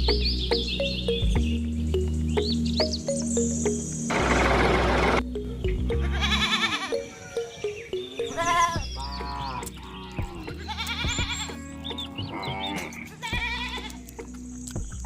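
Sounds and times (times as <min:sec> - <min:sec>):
background music: 0:00.0 - 0:15.0
farm animals bleating: 0:05.9 - 0:07.5, 0:08.1 - 0:14.2.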